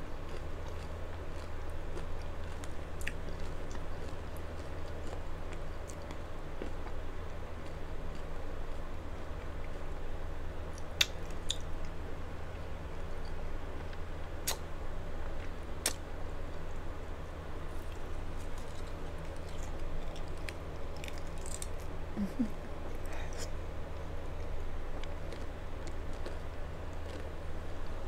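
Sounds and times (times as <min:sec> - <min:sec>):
crunchy taco shell chewing: 0:00.2 - 0:07.0, 0:17.6 - 0:22.0, 0:24.3 - 0:27.6.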